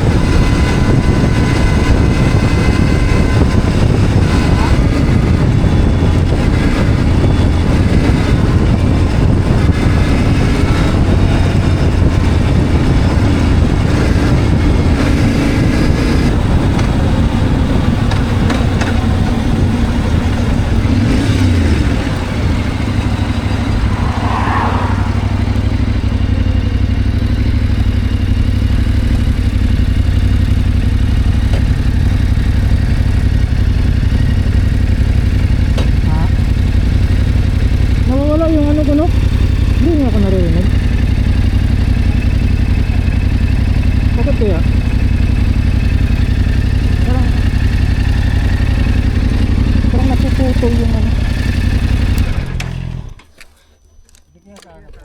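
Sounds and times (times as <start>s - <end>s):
motorcycle engine running: 0.0s - 54.2s
wind and road noise: 0.0s - 55.0s.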